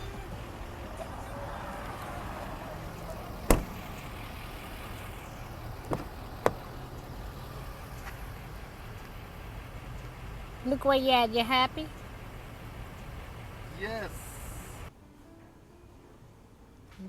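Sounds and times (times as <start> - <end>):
car engine idling: 0.0 - 14.9.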